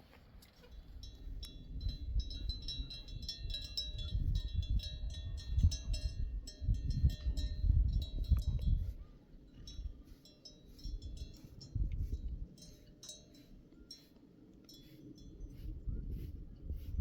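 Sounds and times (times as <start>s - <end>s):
livestock bells jingling: 0.6s - 8.9s, 9.6s - 14.1s.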